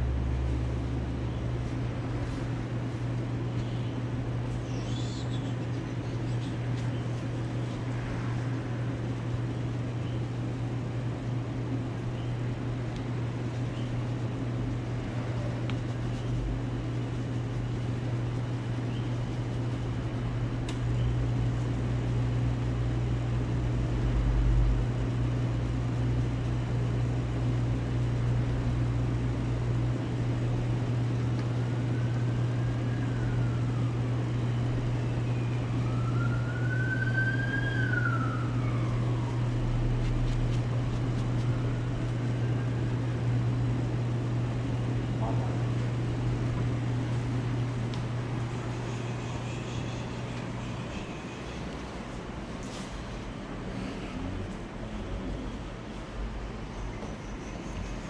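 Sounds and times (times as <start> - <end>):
low mechanical hum: 0.0 - 58.0
siren wailing: 31.7 - 40.5.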